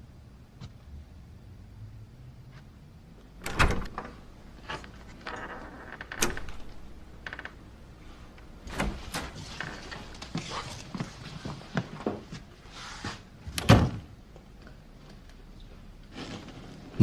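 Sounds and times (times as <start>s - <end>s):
door latch clicks and knocks: 3.4s - 4.2s, 6.0s - 6.9s
door rattle: 3.4s - 7.7s.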